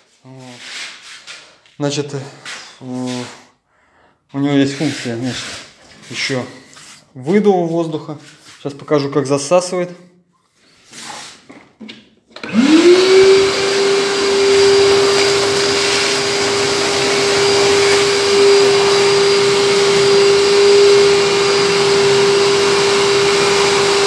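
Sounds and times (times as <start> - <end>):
vacuum cleaner motor whining: 12.4 - 24.0
vacuum sucking air: 12.4 - 24.0.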